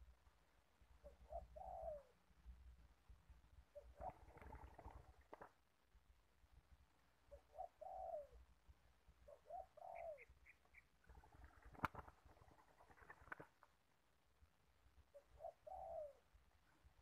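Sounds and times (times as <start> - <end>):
dove cooing: 1.0 - 2.2, 3.7 - 5.4, 7.3 - 8.4, 9.3 - 13.4, 15.1 - 16.4.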